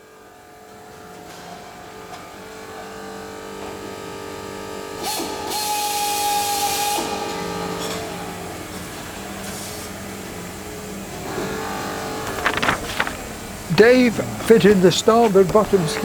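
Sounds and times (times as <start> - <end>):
workshop hum: 7.0 - 16.0.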